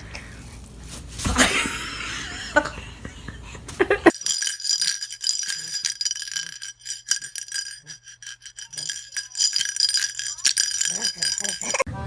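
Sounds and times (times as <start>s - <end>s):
high ringing tones: 4.1s - 11.9s.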